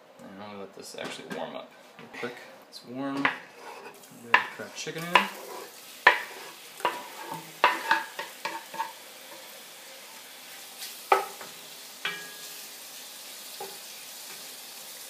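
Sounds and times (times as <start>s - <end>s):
wooden spatula knocking on iron: 3.2s - 3.4s, 4.3s - 5.4s
chicken sizzling in hot oil: 3.7s - 15.0s.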